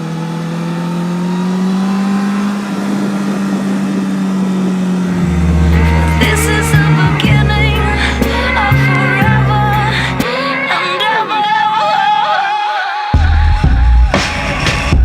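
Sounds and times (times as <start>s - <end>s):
motorcycle engine running: 0.0s - 10.6s
music with deep bass line: 5.1s - 10.3s, 13.2s - 15.0s.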